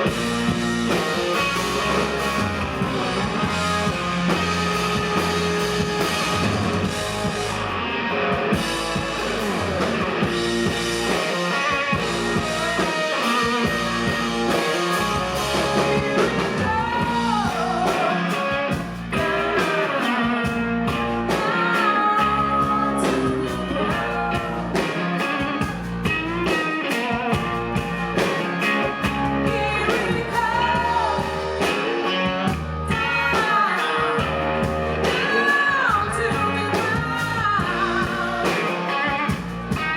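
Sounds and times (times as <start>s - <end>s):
bass guitar: 0.0s - 39.9s
drums: 0.0s - 39.9s
electric guitar: 0.0s - 39.9s
person singing: 11.1s - 39.9s.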